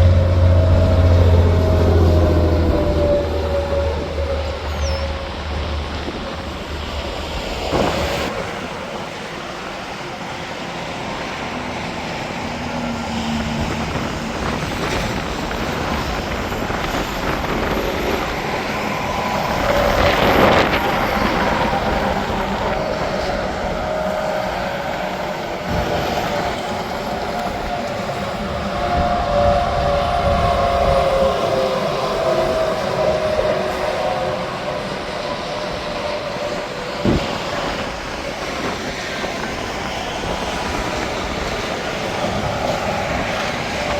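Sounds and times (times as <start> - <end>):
vehicle passing loudly: 0.0 - 5.9
highway traffic: 0.0 - 43.9.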